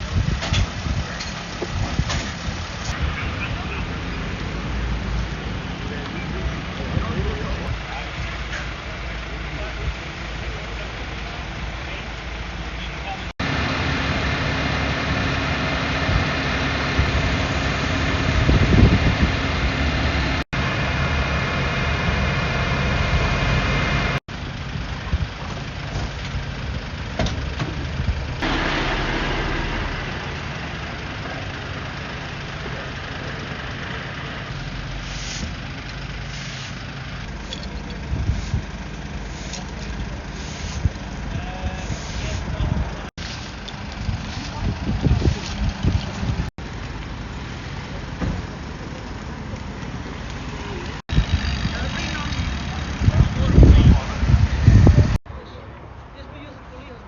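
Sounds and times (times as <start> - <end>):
vehicle engine idling: 0.0 - 57.0
quiet rumble: 24.8 - 33.4.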